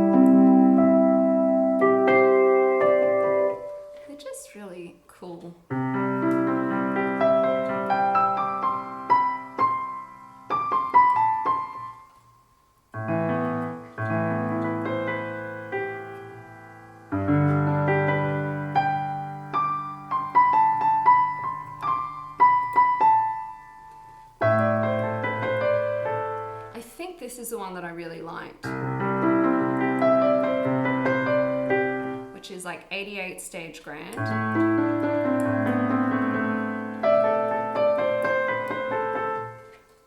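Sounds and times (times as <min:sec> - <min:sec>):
synthesizer playing piano chords: 0:00.0 - 0:04.0, 0:05.7 - 0:12.2, 0:13.0 - 0:26.8, 0:28.7 - 0:32.4, 0:34.2 - 0:40.0.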